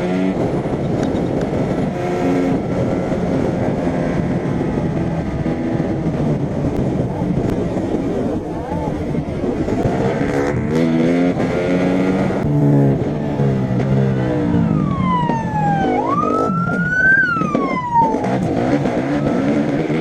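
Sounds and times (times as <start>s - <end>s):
engine revving: 8.8s - 20.0s
police siren wailing: 14.2s - 20.0s.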